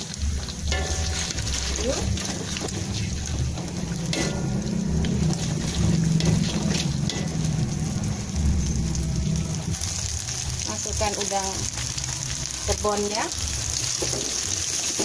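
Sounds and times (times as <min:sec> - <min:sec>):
egg and garlic sizzling in oil: 0:00.0 - 0:15.0
spatula scraping metal wok: 0:00.6 - 0:08.9.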